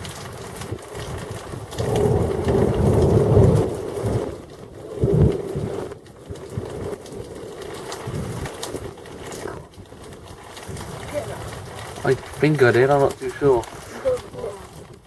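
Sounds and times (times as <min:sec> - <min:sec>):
thunder rumbling: 0:00.0 - 0:15.0.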